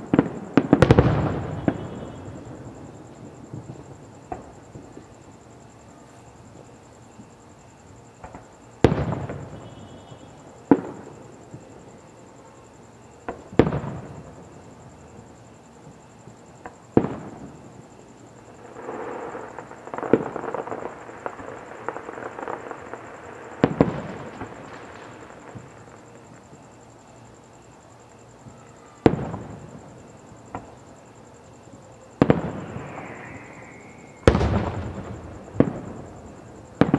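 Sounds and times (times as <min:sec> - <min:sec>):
firework crackling pops: 0:00.0 - 0:02.6, 0:08.2 - 0:11.2, 0:13.2 - 0:14.3, 0:18.5 - 0:26.6, 0:29.0 - 0:29.9, 0:32.2 - 0:36.9
firework shells booming: 0:00.0 - 0:02.6, 0:18.6 - 0:26.0, 0:32.2 - 0:36.9.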